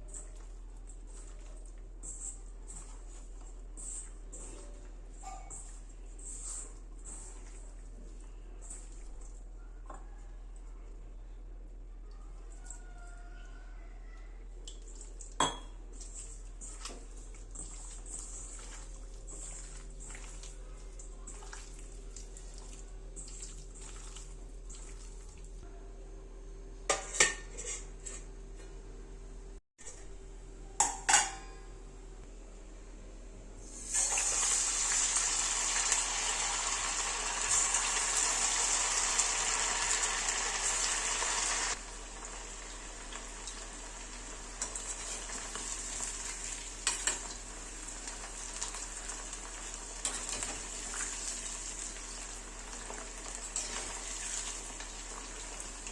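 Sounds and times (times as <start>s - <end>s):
utensils clinking on cookware: 30.8s - 31.6s, 50.0s - 51.4s, 52.7s - 55.9s
food sizzling in hot oil: 33.6s - 55.9s.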